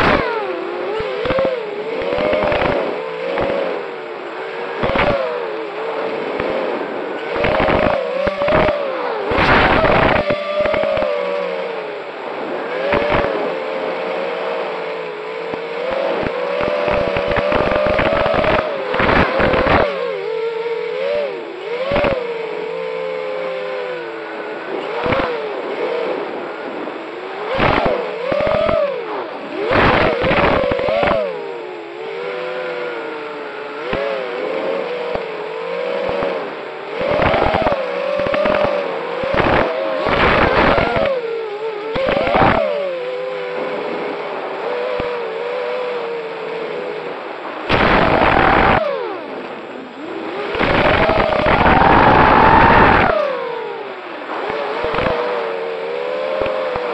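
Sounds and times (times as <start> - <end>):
drone motors whining: 0.0 - 56.9
short loud noise bursts: 6.2 - 11.6, 15.3 - 20.0, 47.6 - 53.6.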